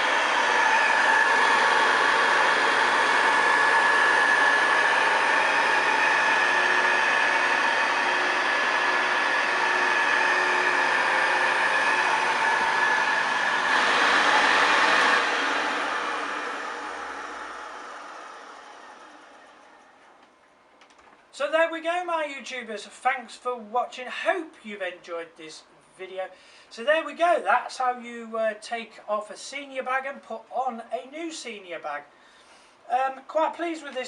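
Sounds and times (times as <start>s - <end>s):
vacuum cleaner motor whine: 0.0s - 20.3s
vacuum motor winding down: 0.0s - 20.3s.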